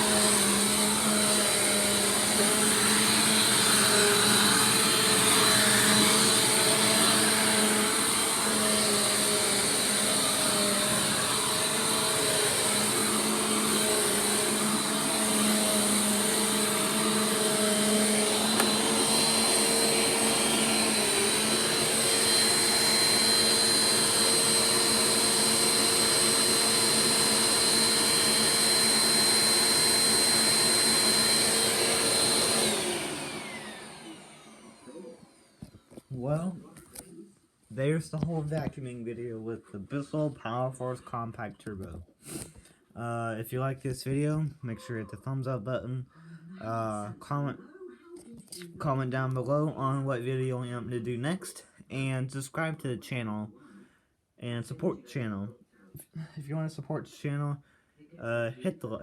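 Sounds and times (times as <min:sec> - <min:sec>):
vacuum cleaner motor whine: 0:00.0 - 0:36.5.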